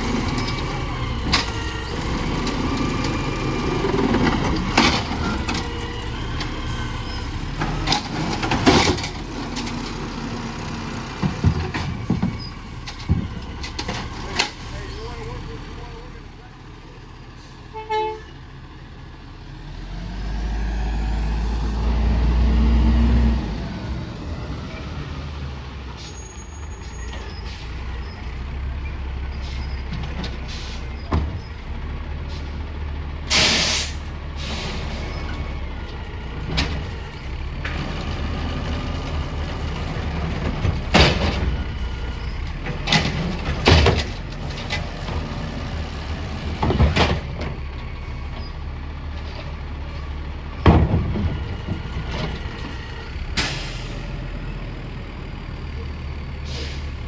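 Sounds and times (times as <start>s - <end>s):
truck diesel engine revving: 0.0s - 57.0s
air brake hiss: 33.3s - 34.9s, 53.4s - 54.0s, 56.4s - 57.0s.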